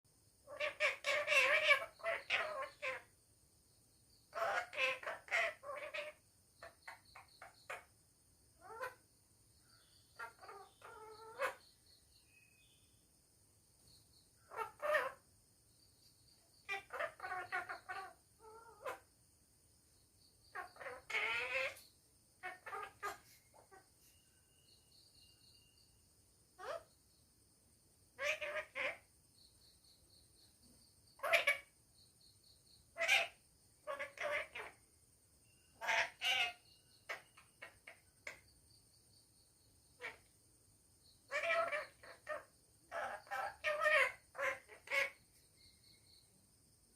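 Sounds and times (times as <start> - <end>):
parrot calling and chattering: 0.5 - 3.1, 4.3 - 7.9, 8.6 - 9.0, 10.1 - 11.8, 14.5 - 15.2, 16.6 - 19.1, 20.5 - 21.8, 22.4 - 23.9, 26.6 - 26.9, 28.2 - 29.0, 31.2 - 31.8, 32.9 - 34.8, 35.7 - 38.5, 40.0 - 40.3, 41.3 - 45.3.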